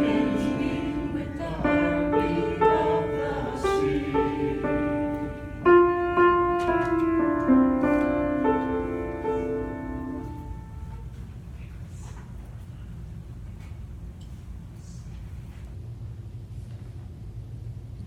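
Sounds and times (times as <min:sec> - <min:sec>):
slow piano chords: 0:00.0 - 0:11.2.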